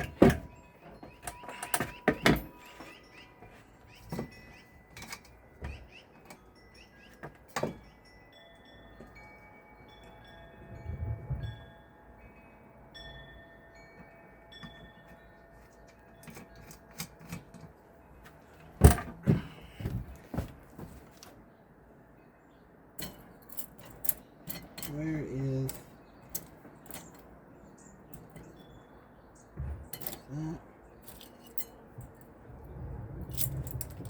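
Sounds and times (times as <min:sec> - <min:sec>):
wind chime ringing: 0:00.0 - 0:18.8.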